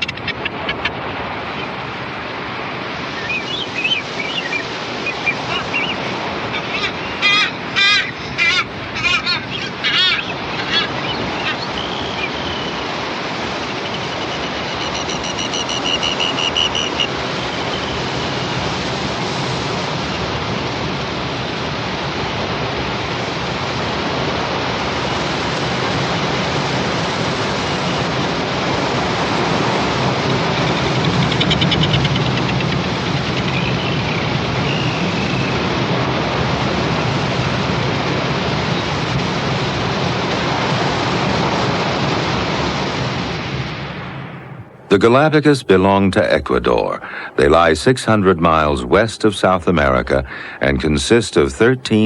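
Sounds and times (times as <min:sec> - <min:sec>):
shrill seabird calls: 0:00.0 - 0:01.8, 0:03.2 - 0:18.7, 0:29.6 - 0:35.7
surf washing on rocks: 0:01.0 - 0:31.4, 0:32.5 - 0:52.0
whistled bird note: 0:03.2 - 0:07.4, 0:09.0 - 0:13.0, 0:13.6 - 0:18.5, 0:33.4 - 0:35.6
fast rattling bird call: 0:03.2 - 0:18.5, 0:30.3 - 0:35.1.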